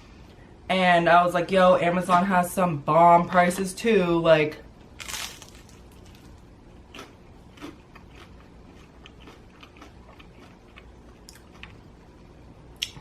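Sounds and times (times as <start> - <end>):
chewing crispy pizza: 5.0 - 13.0.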